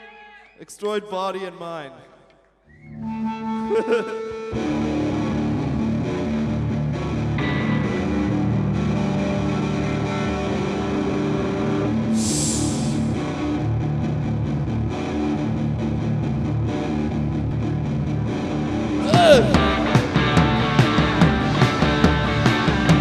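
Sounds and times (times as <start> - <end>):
falling guitar slide: 12.2 - 13.2
wash of hiss: 12.2 - 13.2.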